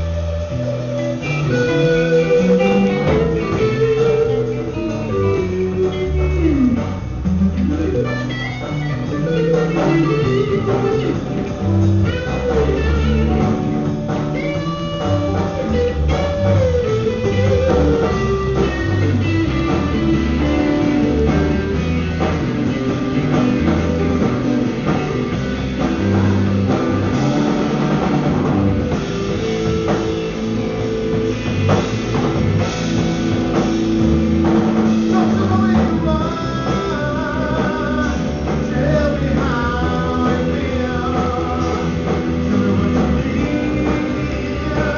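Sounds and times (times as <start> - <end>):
person singing: 0.0 - 13.8, 14.4 - 25.2, 34.8 - 44.9
rock band jamming: 0.0 - 44.9.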